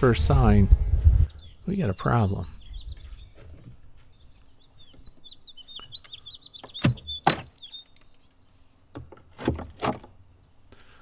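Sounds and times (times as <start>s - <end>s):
small bird chirping high notes: 4.1s - 8.0s.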